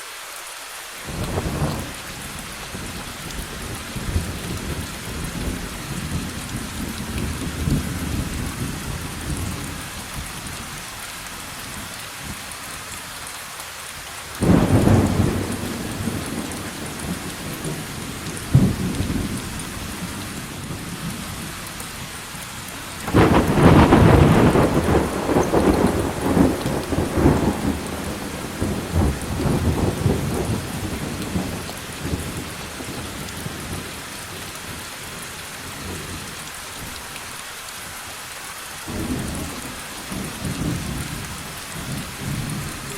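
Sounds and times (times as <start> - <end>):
rain falling: 0.0 - 42.9
sharp thunder crack: 14.4 - 17.8, 23.1 - 31.5
thunderclap: 14.4 - 21.0, 23.1 - 32.4
rolling thunder: 14.4 - 21.5, 23.0 - 33.8, 38.9 - 42.9.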